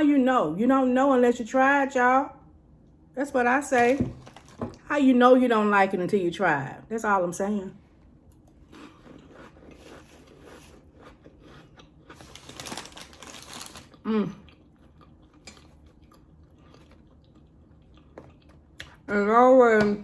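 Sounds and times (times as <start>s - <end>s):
crunchy chewing of crackers: 8.4s - 19.1s.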